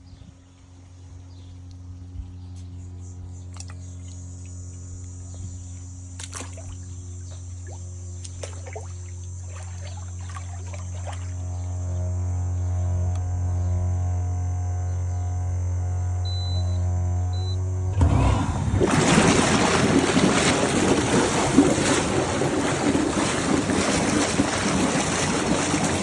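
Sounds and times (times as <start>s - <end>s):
low electric hum: 0.0s - 26.0s
water pouring and splashing: 7.6s - 11.4s, 18.0s - 26.0s.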